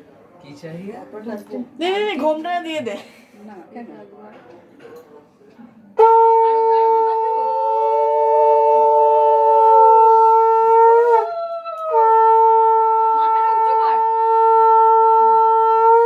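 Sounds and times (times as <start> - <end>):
conch shell blasts: 6.0 - 16.0.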